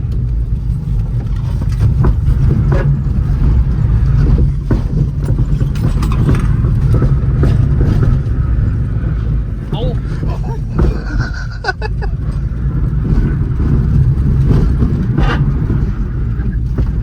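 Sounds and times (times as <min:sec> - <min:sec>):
car engine under load: 0:00.0 - 0:17.0
tyre and road rumble: 0:00.0 - 0:17.0
knocks and rattles: 0:00.8 - 0:17.0.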